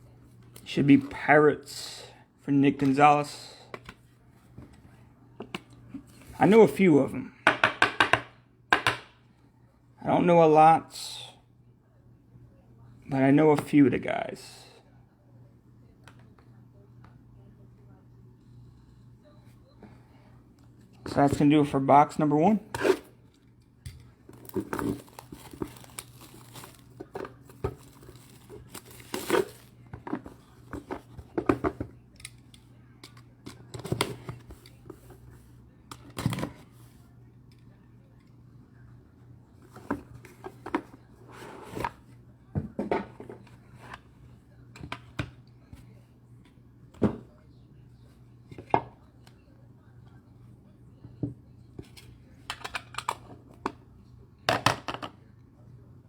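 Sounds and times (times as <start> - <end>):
wrapper crinkling and tearing: 24.4 - 27.0, 27.8 - 29.7.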